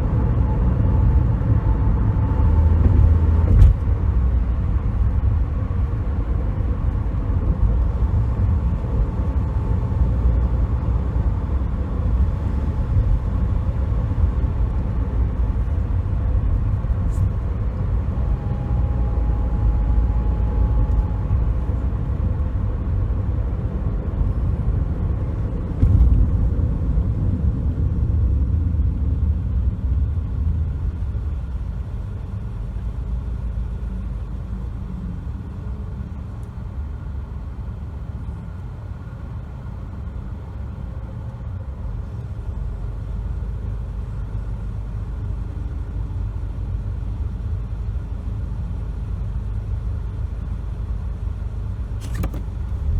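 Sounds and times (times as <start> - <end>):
car road and engine rumble: 0.0 - 52.9
brief thump: 2.8 - 4.0, 52.0 - 52.7.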